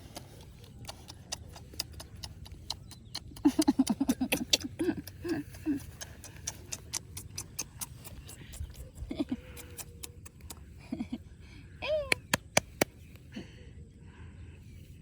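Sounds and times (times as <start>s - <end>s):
woman making staccato pitched sounds: 11.8s - 12.9s.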